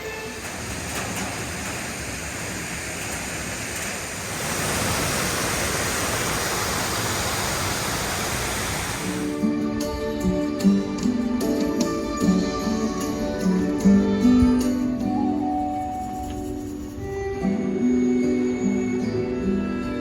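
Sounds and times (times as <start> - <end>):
waterfall rushing: 0.0 - 9.4.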